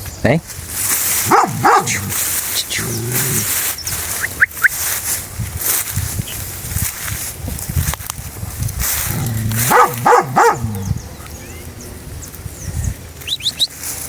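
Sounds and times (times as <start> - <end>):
dog barking: 1.2 - 2.2, 9.1 - 11.3.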